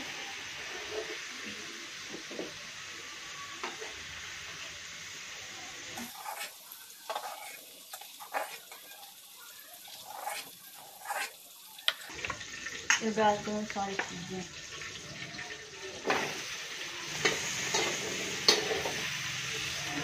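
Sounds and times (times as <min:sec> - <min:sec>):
cheese cubes sizzling in a pan: 0:00.0 - 0:20.0
spoon scraping and tapping a pan: 0:06.0 - 0:08.8, 0:17.2 - 0:19.1.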